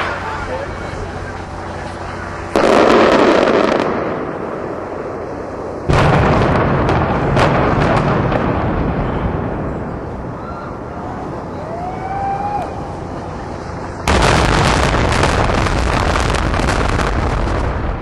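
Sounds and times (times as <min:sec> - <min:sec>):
low rumble of collapse: 0:00.0 - 0:18.0
explosive blast: 0:02.5 - 0:10.9, 0:12.6 - 0:18.0.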